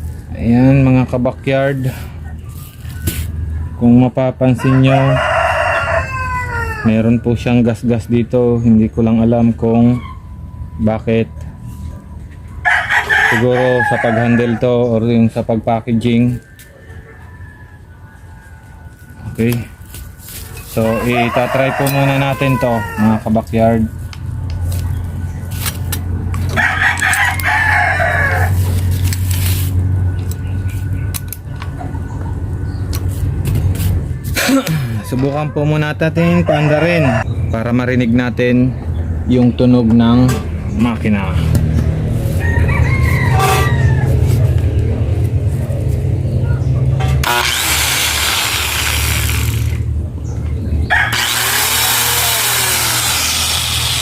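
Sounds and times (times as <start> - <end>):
rooster crowing: 4.5 - 7.3, 12.6 - 14.9, 16.4 - 18.6, 20.8 - 23.5, 26.5 - 28.7, 35.0 - 37.3, 42.2 - 44.8, 50.8 - 53.2
angle grinder whining: 47.2 - 49.9, 51.0 - 54.0.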